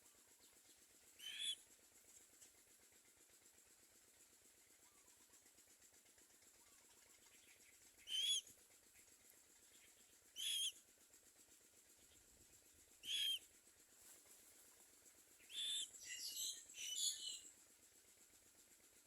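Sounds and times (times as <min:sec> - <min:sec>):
myna rough chattering calls: 0:01.2 - 0:01.6, 0:08.0 - 0:08.5, 0:09.8 - 0:10.8, 0:13.0 - 0:13.5, 0:15.4 - 0:17.4.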